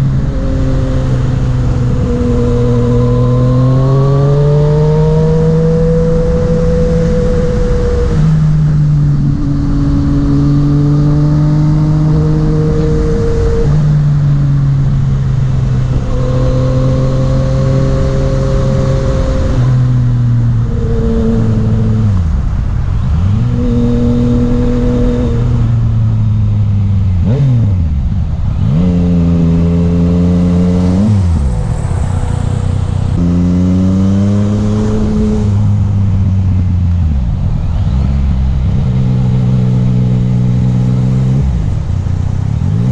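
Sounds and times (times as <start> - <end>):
motorcycle engine under way: 0.0 - 42.9
steady rushing noise: 17.3 - 42.9.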